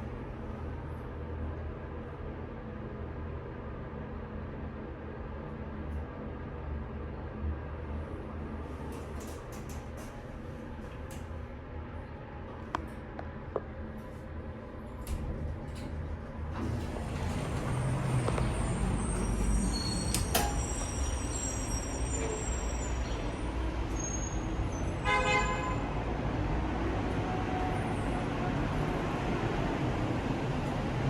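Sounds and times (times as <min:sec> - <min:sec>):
heavy vehicle rumble: 0:14.7 - 0:31.0
high squeals: 0:17.3 - 0:25.0.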